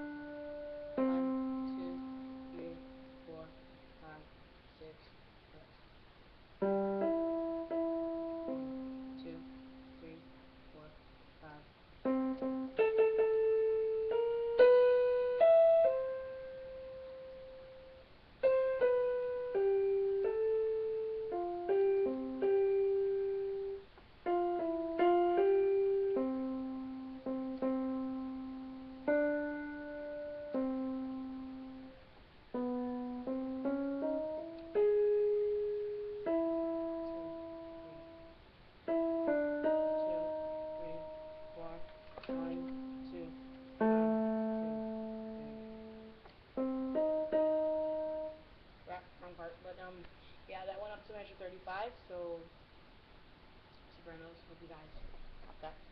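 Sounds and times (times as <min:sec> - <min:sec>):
slow piano melody: 0:00.0 - 0:04.2, 0:06.6 - 0:10.9, 0:12.0 - 0:49.0.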